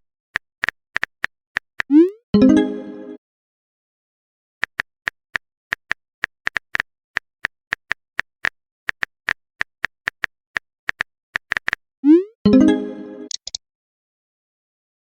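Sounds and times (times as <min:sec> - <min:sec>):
phone keyboard typing clicks: 0:04.6 - 0:11.8, 0:13.3 - 0:13.6.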